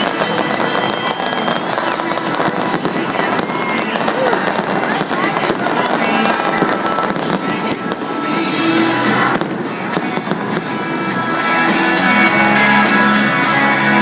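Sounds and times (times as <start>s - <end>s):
fireworks bangs and crackles: 0.0s - 14.0s
music over loudspeakers: 0.0s - 14.0s.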